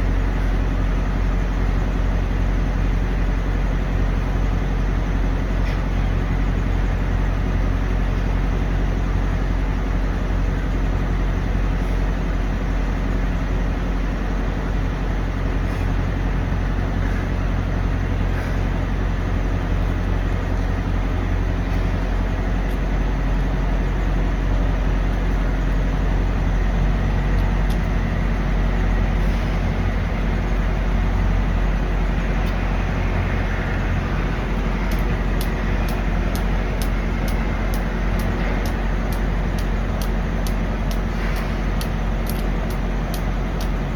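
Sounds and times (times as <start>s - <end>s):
diesel truck engine idling: 0.0s - 43.9s.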